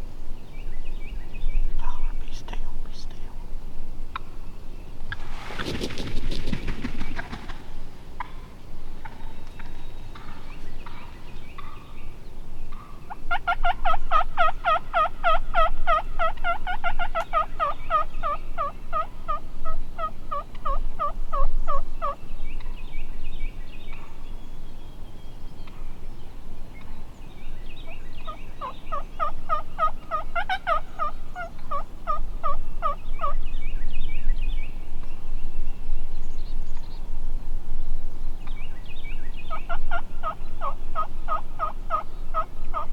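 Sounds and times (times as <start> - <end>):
turkey yelping: 12.7 - 22.2, 28.6 - 33.3, 40.2 - 42.9.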